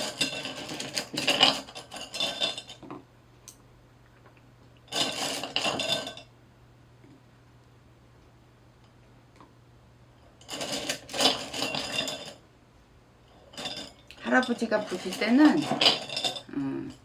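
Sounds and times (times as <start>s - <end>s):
small metal pieces clinking: 10.4s - 12.4s, 13.5s - 16.5s.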